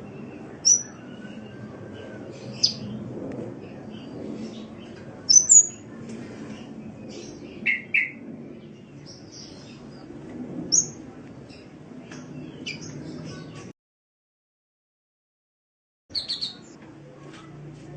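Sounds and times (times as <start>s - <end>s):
bird chirping: 0.6s - 1.2s, 5.3s - 5.8s, 16.1s - 16.8s.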